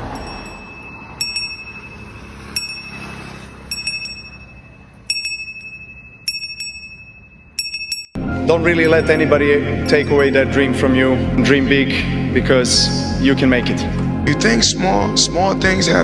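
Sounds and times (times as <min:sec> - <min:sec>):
metal bell ringing: 0:00.0 - 0:08.2, 0:08.8 - 0:10.9.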